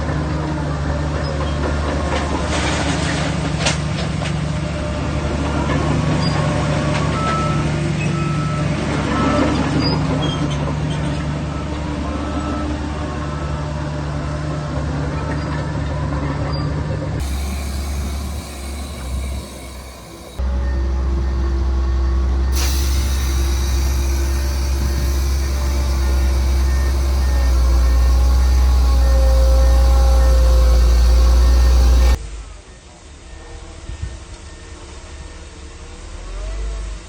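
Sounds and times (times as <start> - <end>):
bulldozer diesel engine running: 17.2 - 32.2
short machine squeaks: 17.2 - 32.2.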